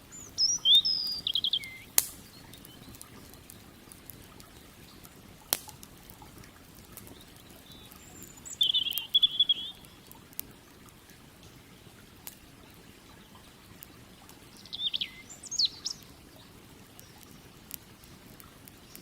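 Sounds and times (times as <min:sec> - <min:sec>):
songbird warbling: 0:00.0 - 0:03.0, 0:07.1 - 0:10.0, 0:14.4 - 0:16.4
campfire crackling and popping: 0:00.0 - 0:19.0
flowing river water: 0:00.0 - 0:19.0.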